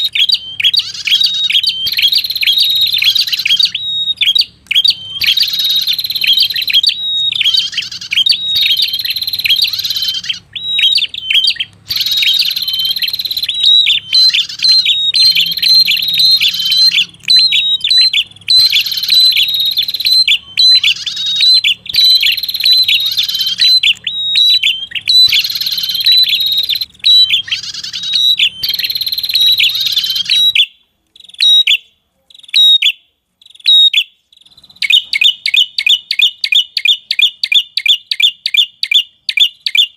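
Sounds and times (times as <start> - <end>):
bird chattering high notes: 0.0 - 31.8.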